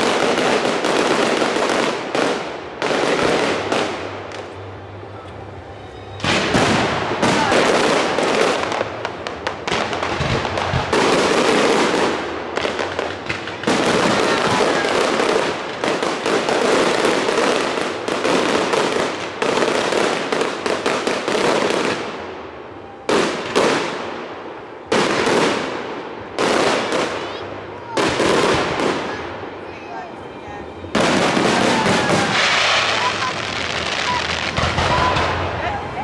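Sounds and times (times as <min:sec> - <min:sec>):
fireworks crackling: 0:00.0 - 0:36.0.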